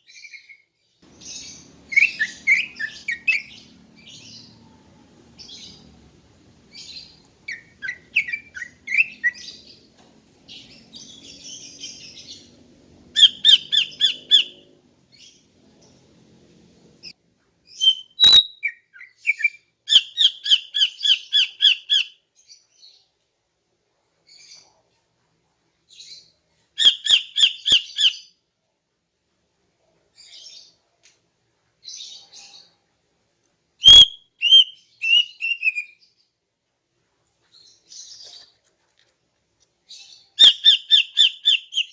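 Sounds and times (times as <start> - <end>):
bird calling: 1.1 - 6.0, 6.7 - 9.9, 10.5 - 14.7, 33.8 - 35.9.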